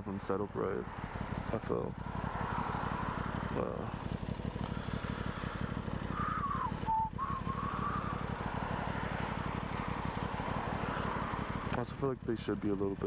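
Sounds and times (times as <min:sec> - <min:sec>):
motorcycle engine running: 0:00.0 - 0:13.0
whistle-like tone: 0:06.2 - 0:08.2.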